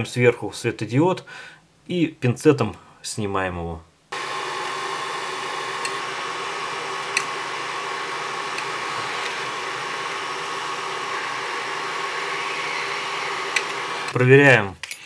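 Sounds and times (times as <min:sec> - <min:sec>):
hot air station fan hiss: 0:04.2 - 0:14.2.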